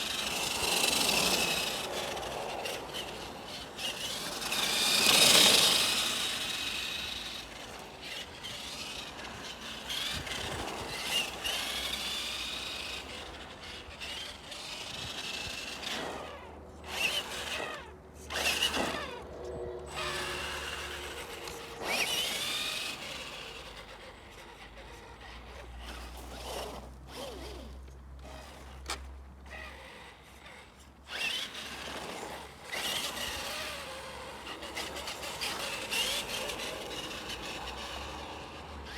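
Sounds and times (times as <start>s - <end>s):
electric motors whining: 0.0s - 38.9s.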